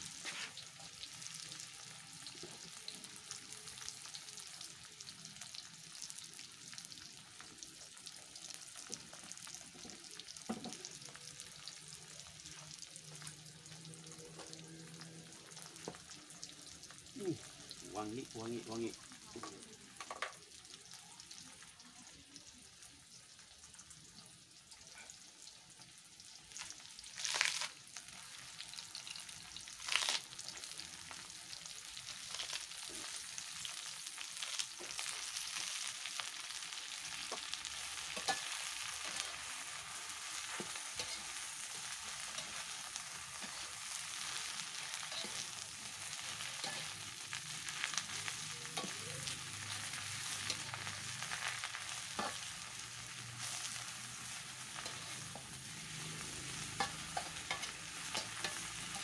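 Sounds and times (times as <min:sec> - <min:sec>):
greens sizzling in a wok: 0:00.0 - 0:59.0
metal spatula scraping a wok: 0:40.4 - 0:42.8, 0:43.4 - 0:59.0.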